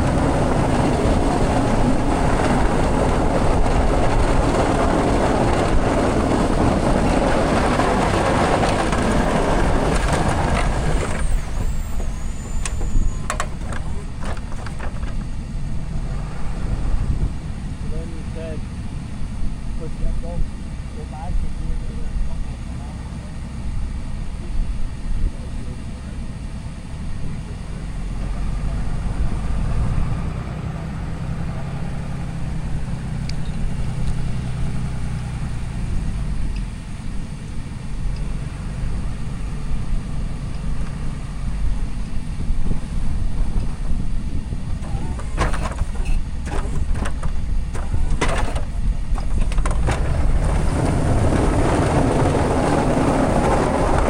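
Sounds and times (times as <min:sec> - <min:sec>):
rushing noise: 0:00.0 - 0:20.0
diesel truck engine rumbling: 0:00.0 - 0:54.0.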